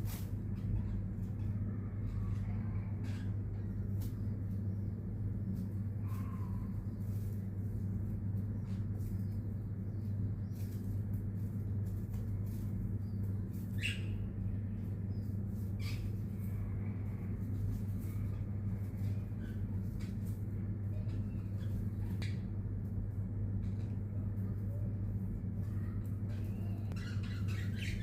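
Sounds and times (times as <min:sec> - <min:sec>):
steady low hum: 0:00.0 - 0:28.0
baby parrot chirping: 0:26.9 - 0:28.0.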